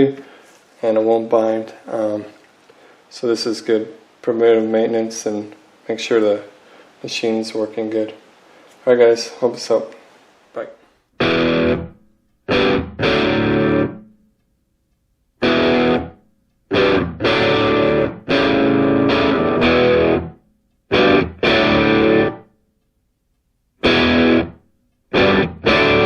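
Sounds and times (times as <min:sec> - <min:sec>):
distorted electric guitar chords: 0:11.2 - 0:14.1, 0:15.4 - 0:22.5, 0:23.8 - 0:26.0.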